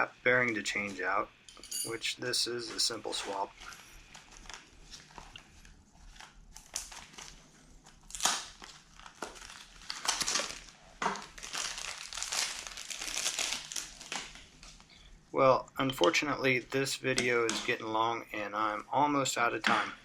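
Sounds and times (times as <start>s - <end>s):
crinkling handling noise: 2.6s - 15.2s.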